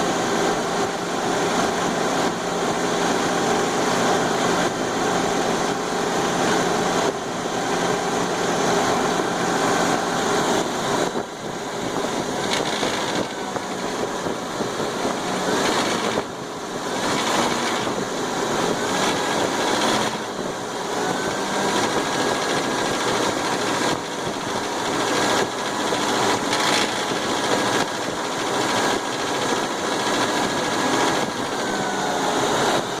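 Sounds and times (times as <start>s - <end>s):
car engine running: 0.0s - 33.0s
engine top noise: 4.5s - 32.9s.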